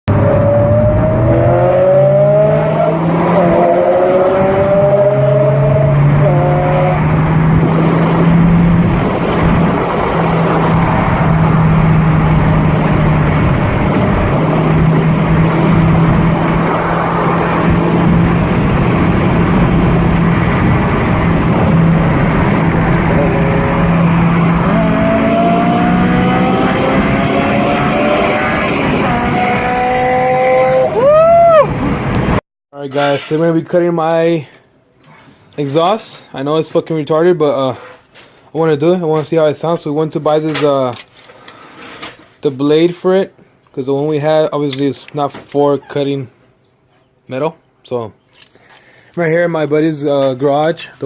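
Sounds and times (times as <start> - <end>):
car engine: 0.1 - 32.4
road and wind noise: 0.1 - 51.0.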